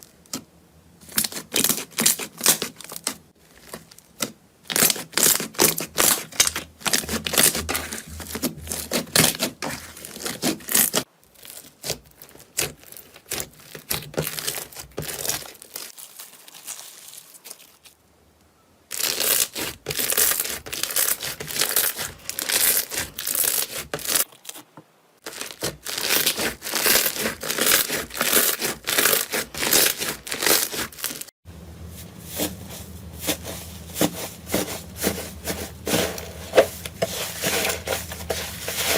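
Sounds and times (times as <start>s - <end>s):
slime crackling and popping: 18.9s - 24.3s, 25.2s - 31.3s.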